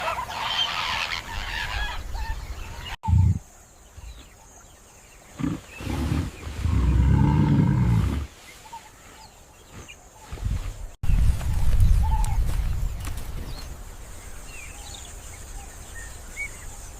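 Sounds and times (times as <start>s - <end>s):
loud low animal roar: 5.4s - 8.3s
low animal grunts: 5.4s - 8.3s.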